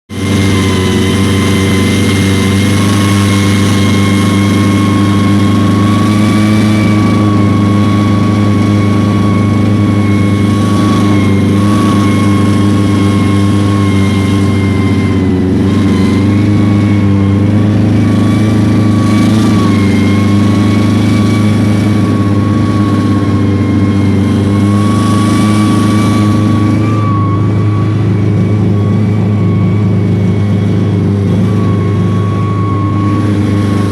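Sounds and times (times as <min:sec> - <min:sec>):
engine running steadily: 0:00.0 - 0:33.9.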